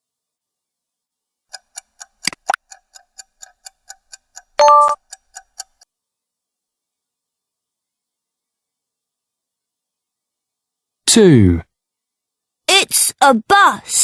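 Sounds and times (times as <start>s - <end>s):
clock-like ticking: 1.5s - 5.9s.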